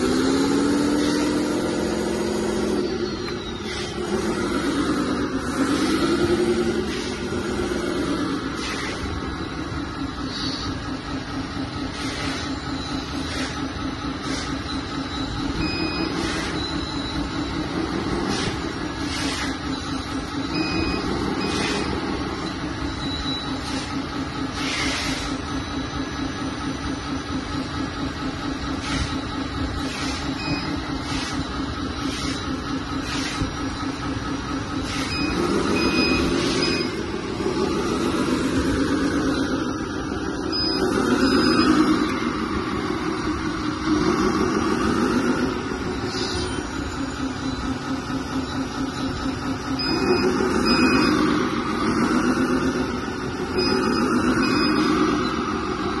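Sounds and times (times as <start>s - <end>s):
electric hydraulic pump buzzing: 0.0s - 25.9s, 28.3s - 48.0s
short high beeps: 14.2s - 23.9s, 30.0s - 34.0s, 34.8s - 42.4s, 45.8s - 52.8s, 53.5s - 55.6s.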